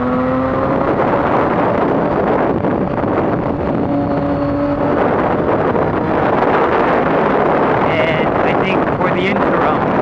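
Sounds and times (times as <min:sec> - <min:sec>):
motorcycle engine running: 0:00.0 - 0:10.0
wind rush on microphone: 0:00.0 - 0:10.0.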